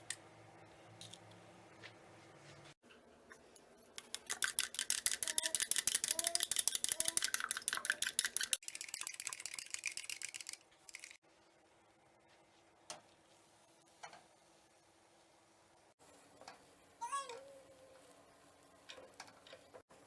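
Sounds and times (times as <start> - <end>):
rapid kitchen utensil strokes: 3.5 - 11.2.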